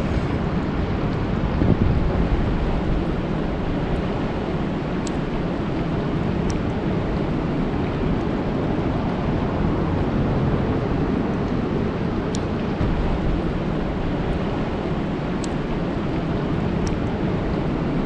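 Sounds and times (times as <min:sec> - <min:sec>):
raindrop ticks: 0:02.4 - 0:08.3, 0:12.3 - 0:17.8.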